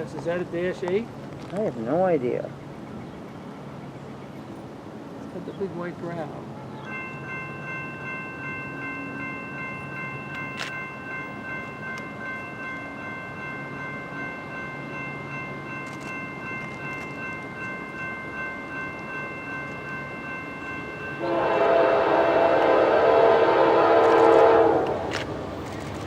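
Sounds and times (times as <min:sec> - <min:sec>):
train low rumble: 0:00.0 - 0:26.0
locomotive horn: 0:21.2 - 0:25.2.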